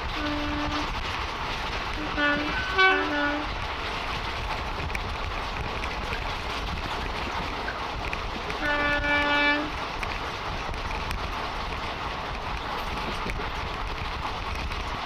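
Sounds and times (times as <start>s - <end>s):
train horn blast: 0.0s - 1.0s, 2.0s - 3.6s, 8.6s - 9.8s
train running noise: 0.0s - 15.0s.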